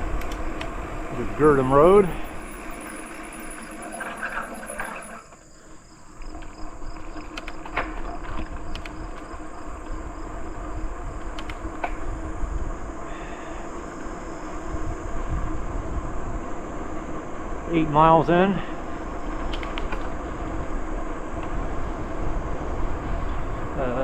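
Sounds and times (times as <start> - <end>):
bicycle clicks and rattles: 0.0 - 1.0, 1.6 - 5.4, 6.3 - 12.2, 19.2 - 23.3
bicycle tyre and wind noise: 0.0 - 24.0
insects chirping: 0.0 - 24.0.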